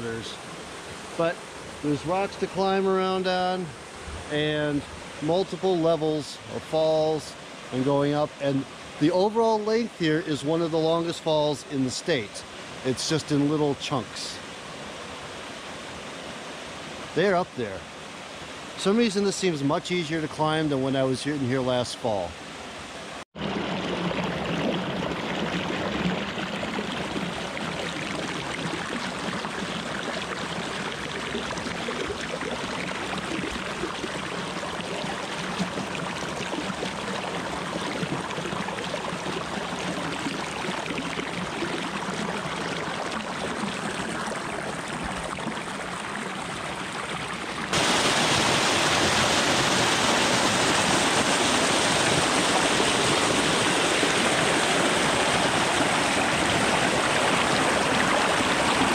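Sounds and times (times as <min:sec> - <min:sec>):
waterfall splashing down rock: 0:47.7 - 0:58.9.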